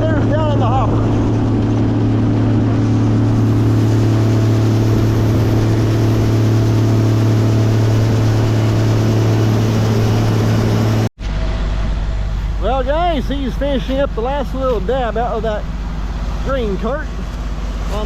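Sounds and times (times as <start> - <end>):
combine harvester droning: 0.0 - 18.0.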